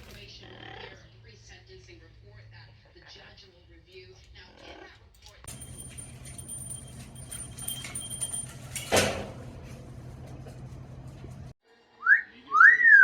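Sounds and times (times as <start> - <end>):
parrot rising whistle: 12.0 - 13.0.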